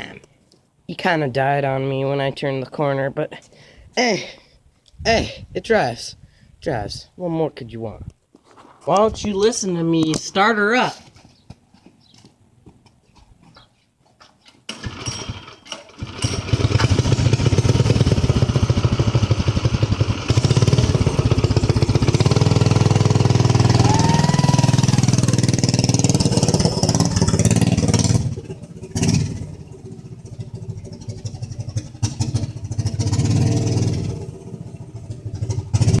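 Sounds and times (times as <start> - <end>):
man talking: 0.9 - 4.4, 5.0 - 8.1, 8.8 - 11.1
small engine starting and running: 14.7 - 36.0.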